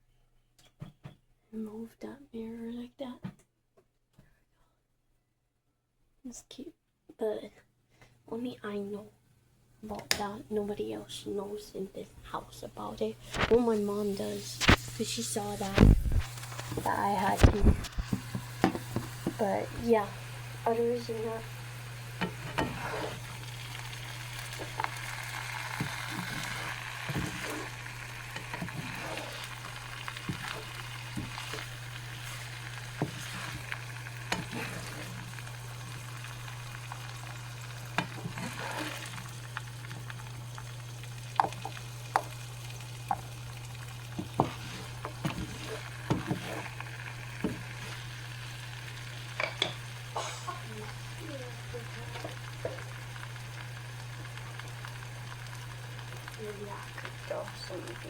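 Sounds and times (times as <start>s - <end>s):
food sizzling in hot oil: 13.2s - 58.0s
oil popping and crackling: 14.4s - 58.0s.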